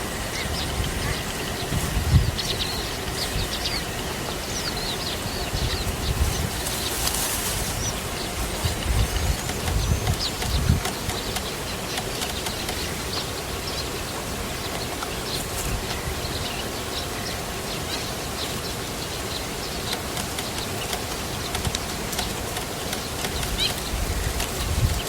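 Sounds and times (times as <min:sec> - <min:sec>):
small birds chirping: 0:00.0 - 0:25.0
steady background hiss: 0:00.0 - 0:25.0.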